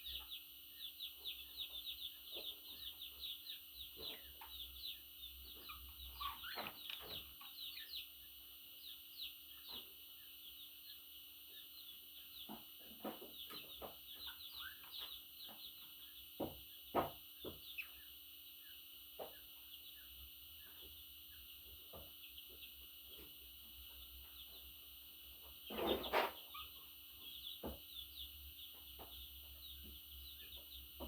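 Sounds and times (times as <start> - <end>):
budgerigars chattering: 1.0 - 8.0.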